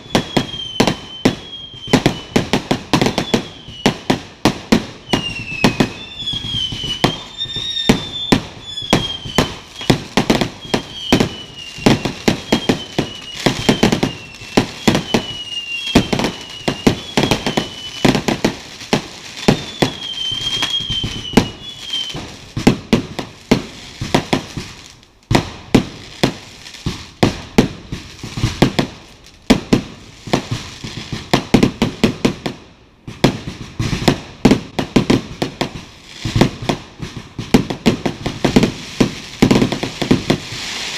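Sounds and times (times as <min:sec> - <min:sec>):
wavering high whistle: 0:00.0 - 0:04.1, 0:05.1 - 0:18.3, 0:19.4 - 0:22.4
fireworks bangs and crackles: 0:00.0 - 0:40.9.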